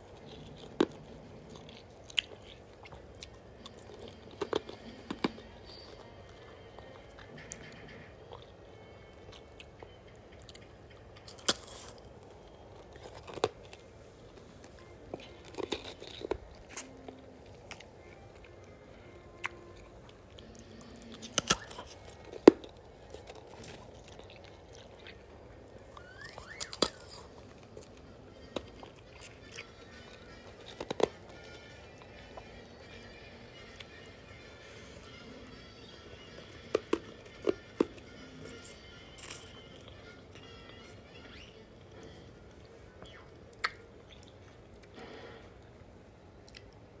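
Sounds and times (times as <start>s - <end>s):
ice crunching between teeth: 11.2s - 12.1s, 12.8s - 13.8s, 15.1s - 17.8s, 21.0s - 25.2s, 26.0s - 31.6s, 38.6s - 40.0s.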